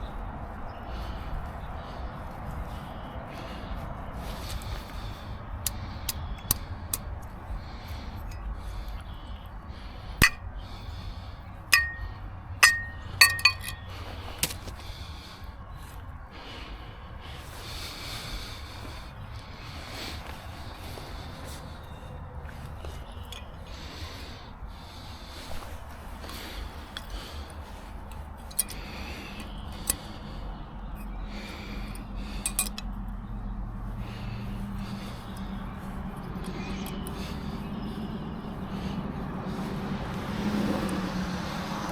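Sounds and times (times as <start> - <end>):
faint hum: 0.0 - 41.6
low steady rumble: 0.0 - 41.9
metal objects clinking: 10.2 - 10.4, 11.8 - 13.9.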